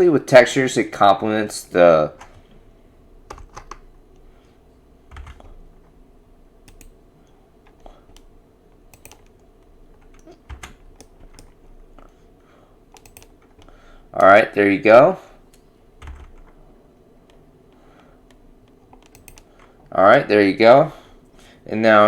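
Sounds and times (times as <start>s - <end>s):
low steady hum: 0.0s - 22.0s
keyboard and mouse clicks: 3.3s - 4.3s, 5.1s - 6.0s, 6.6s - 12.2s, 12.9s - 14.4s, 15.5s - 16.6s, 17.2s - 19.9s.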